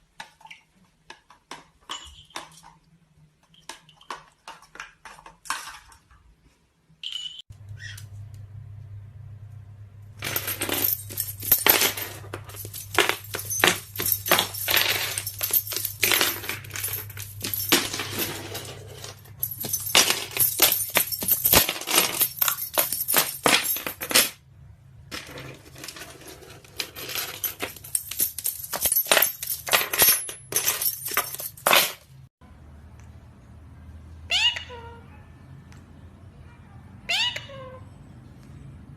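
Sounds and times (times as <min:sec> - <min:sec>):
rapid clinking and rattling: 0:10.2 - 0:24.4, 0:25.1 - 0:32.3.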